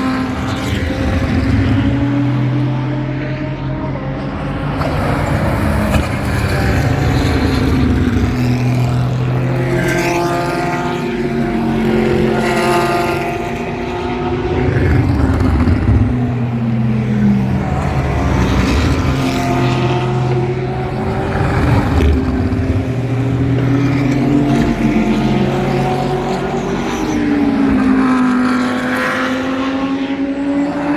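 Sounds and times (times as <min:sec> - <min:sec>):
race cars passing: 0:00.0 - 0:30.9
low engine hum: 0:13.5 - 0:26.6.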